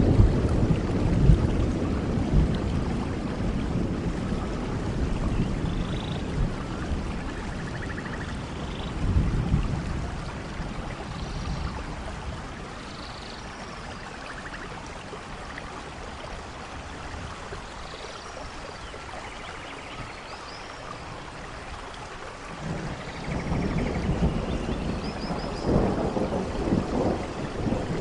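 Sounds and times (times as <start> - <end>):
low thunder rumble: 0.0 - 12.9, 22.5 - 28.0
steady rainfall: 0.0 - 28.0.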